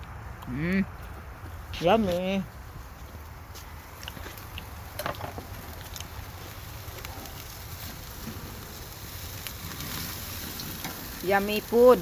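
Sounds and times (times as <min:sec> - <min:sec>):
steak sizzling: 0:03.7 - 0:12.0.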